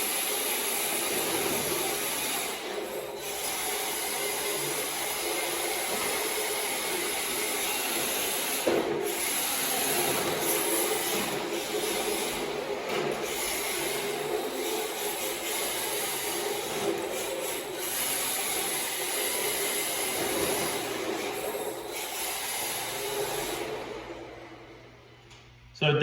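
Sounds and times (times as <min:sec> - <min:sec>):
tires sliding on floor: 0:00.0 - 0:24.7.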